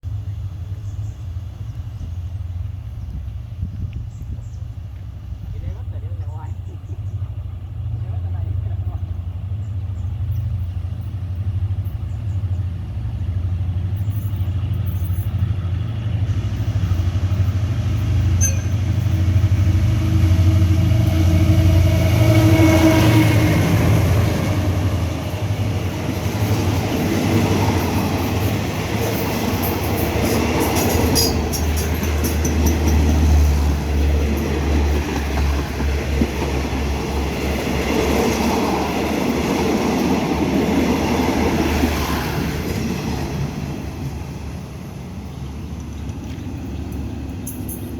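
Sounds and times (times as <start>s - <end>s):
locomotive engine droning: 0.1s - 47.9s
train wheels clattering on rails: 13.3s - 44.6s.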